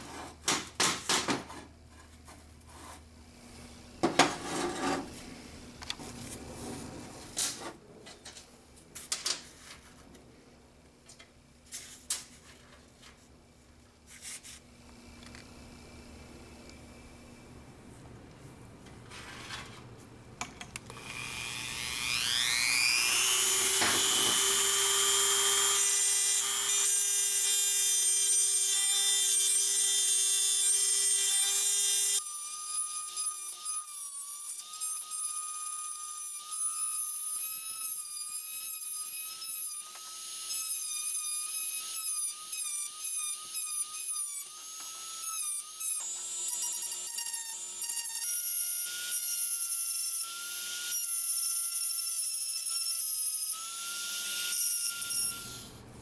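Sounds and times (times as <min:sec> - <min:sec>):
electric power tool whining: 0:20.8 - 0:33.0.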